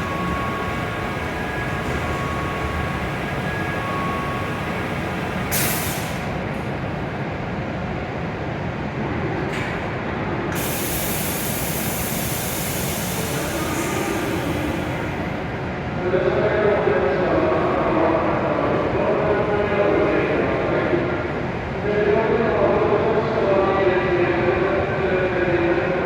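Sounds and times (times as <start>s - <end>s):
train equipment hum and rumble: 0.0s - 26.0s
loud hisses of air: 5.5s - 6.4s, 10.5s - 15.4s.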